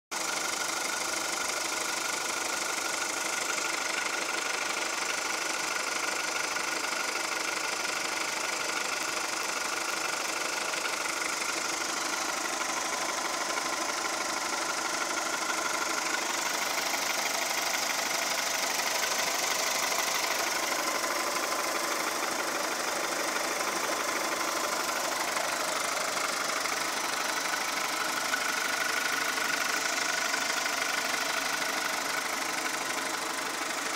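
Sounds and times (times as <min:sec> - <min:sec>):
car engine clattering: 0:09.6 - 0:33.9.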